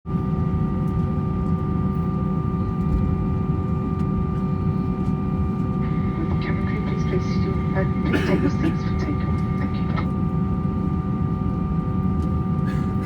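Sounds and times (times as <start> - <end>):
aircraft cabin low rumble: 0.9 - 13.0
steady whining tones: 5.5 - 10.1.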